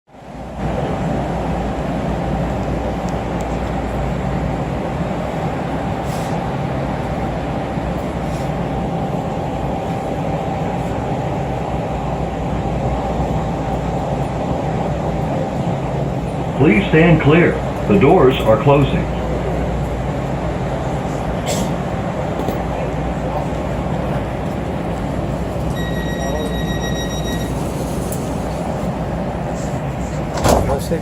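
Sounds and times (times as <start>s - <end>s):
light-rail train rumble: 0.1s - 31.0s
constant tone: 25.5s - 28.6s.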